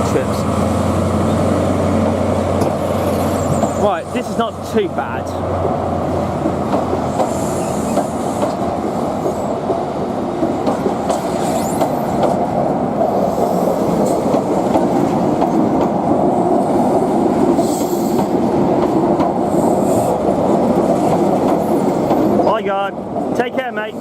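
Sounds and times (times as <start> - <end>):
train rumble: 0.0 - 24.0
wheels clicking over rail joints: 6.4 - 12.5
high wheel squeals: 11.3 - 12.1.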